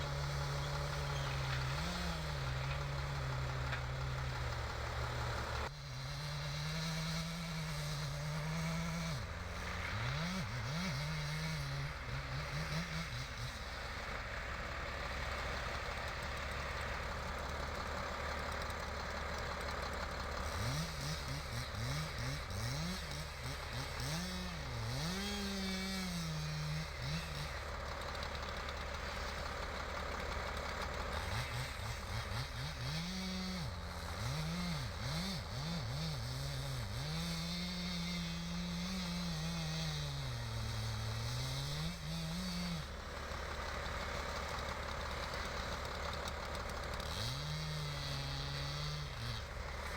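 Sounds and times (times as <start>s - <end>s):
engine idling and revving: 0.0s - 49.9s.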